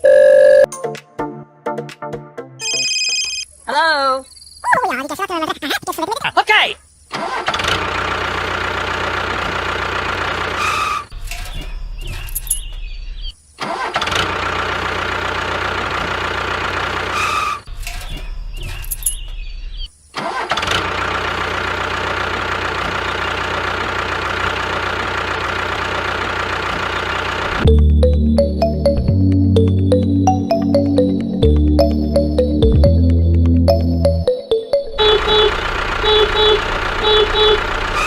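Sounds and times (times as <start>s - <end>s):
tractor engine droning: 7.4s - 12.7s, 13.8s - 19.4s, 20.3s - 38.0s.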